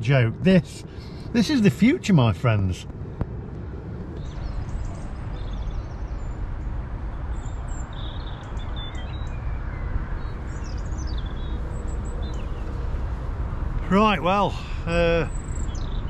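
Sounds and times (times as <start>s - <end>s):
low outdoor rumble: 0.0s - 16.0s
small birds chirping: 4.1s - 16.0s.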